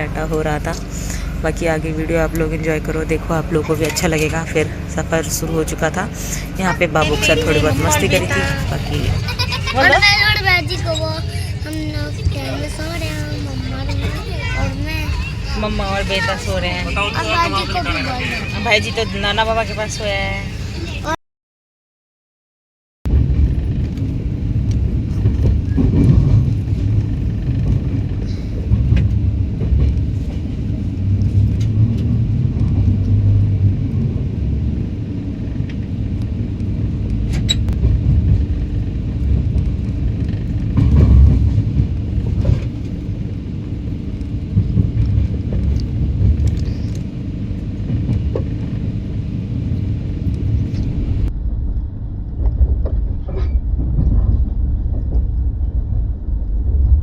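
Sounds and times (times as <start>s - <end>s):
train rumble from on board: 0.0s - 21.2s, 23.1s - 57.0s.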